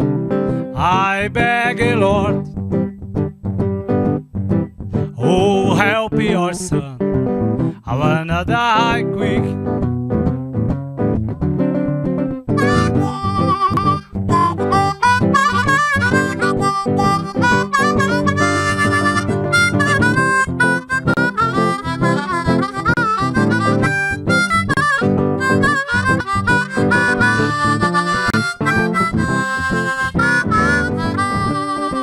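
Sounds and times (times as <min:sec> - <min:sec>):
guitar accompaniment: 0:00.0 - 0:32.0
blues harmonica solo: 0:12.5 - 0:32.0.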